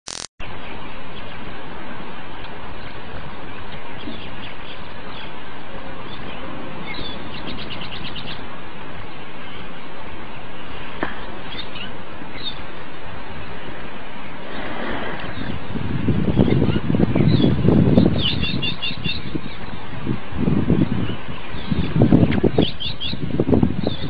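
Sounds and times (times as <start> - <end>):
sharp click: 0.1 - 0.3
steady outdoor hiss: 0.1 - 24.0
small birds chirping: 2.4 - 24.0.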